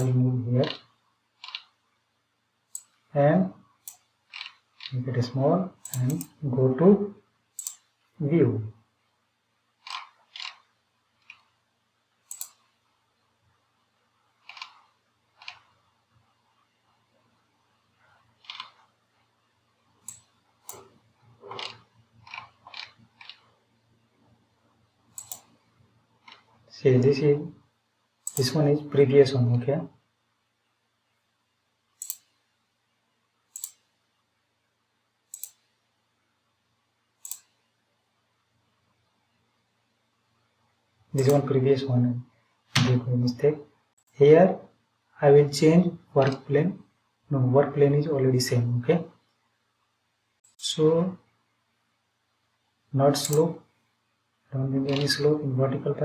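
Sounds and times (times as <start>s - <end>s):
computer mouse clicks: 0.0s - 1.8s, 2.7s - 3.0s, 3.8s - 5.0s, 5.8s - 6.4s, 7.6s - 7.9s, 9.8s - 11.6s, 12.2s - 12.7s, 14.4s - 15.8s, 18.4s - 19.0s, 20.0s - 23.6s, 25.1s - 26.6s, 28.2s - 28.6s, 32.0s - 32.4s, 33.5s - 33.9s, 35.3s - 35.7s, 37.2s - 37.7s, 41.2s - 41.5s, 53.2s - 53.6s.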